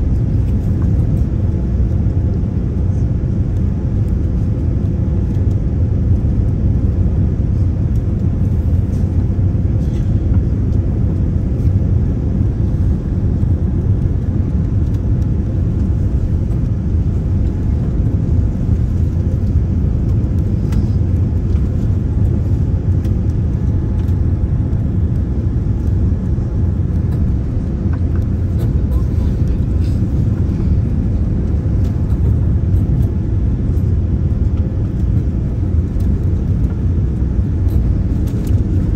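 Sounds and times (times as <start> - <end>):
airliner cabin rumble: 0.0 - 38.9.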